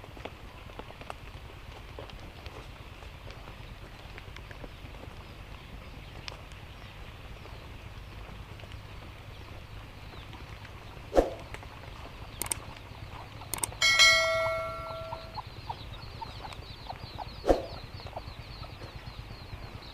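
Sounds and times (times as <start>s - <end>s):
light clicks: 12.4s - 12.8s, 13.5s - 13.8s
metallic bell-like ring: 13.8s - 15.4s.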